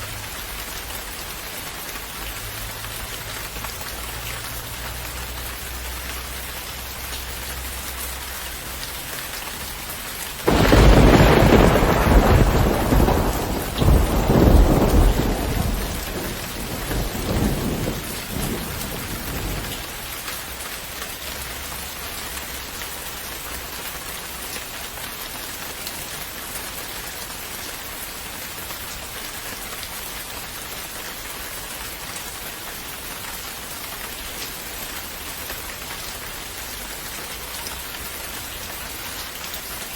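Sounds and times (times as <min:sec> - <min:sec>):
steady rain falling: 0:00.0 - 0:39.9
thunder clap rumbling: 0:10.4 - 0:20.0.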